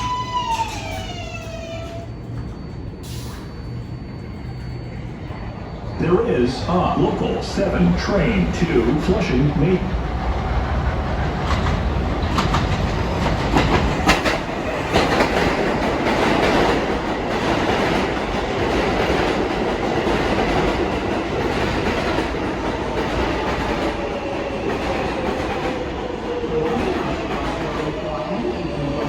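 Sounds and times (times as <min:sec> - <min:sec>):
subway train rumble with whine: 0:00.0 - 0:29.0
train wheels clacking over rail joints: 0:11.2 - 0:24.0.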